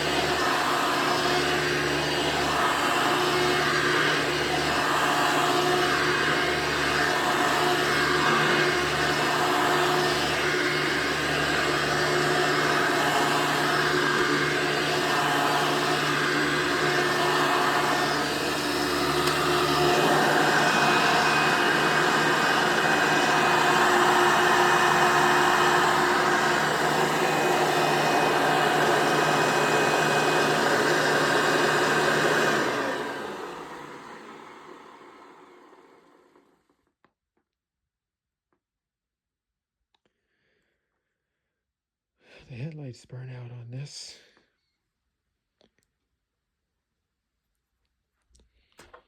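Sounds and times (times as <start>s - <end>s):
vacuum cleaner running: 0.0s - 36.7s.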